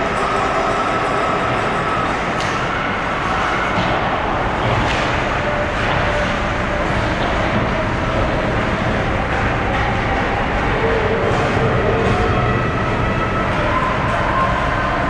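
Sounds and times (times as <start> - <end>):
ice rink crowd rumble: 0.0 - 15.0.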